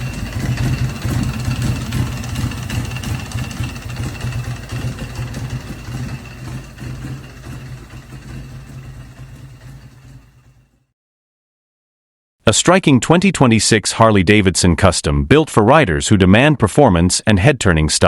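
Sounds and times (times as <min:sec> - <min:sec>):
motorcycle engine idling: 0:00.0 - 0:10.9.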